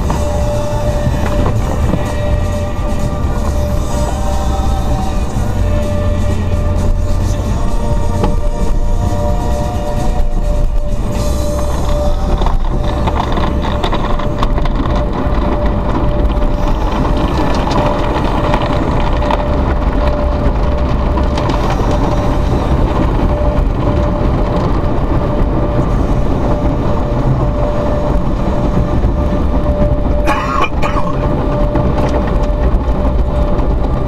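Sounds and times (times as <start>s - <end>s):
car wash water spray: 0.0s - 34.0s
machinery hum: 0.0s - 34.0s.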